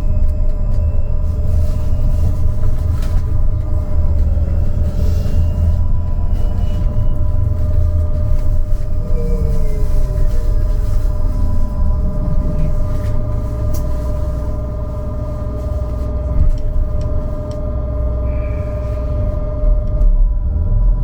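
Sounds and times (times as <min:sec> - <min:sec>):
road rumble: 0:00.0 - 0:21.0
trolleybus electrical hum: 0:00.0 - 0:21.0.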